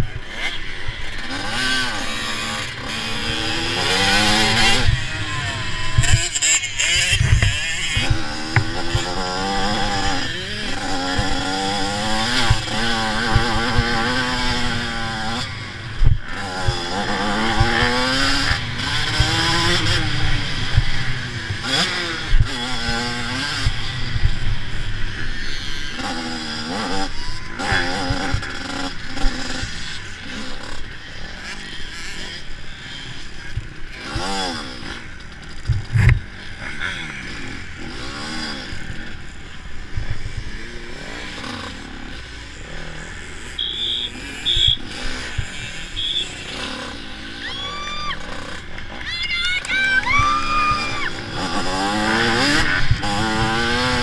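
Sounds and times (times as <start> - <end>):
steady rushing noise: 0.0 - 31.7
motocross bike engine revving: 0.0 - 54.0.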